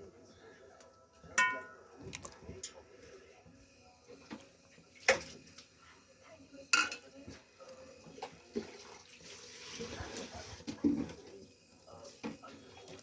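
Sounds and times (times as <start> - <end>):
utensils clinking against dishes: 1.4 - 3.0, 6.7 - 7.1.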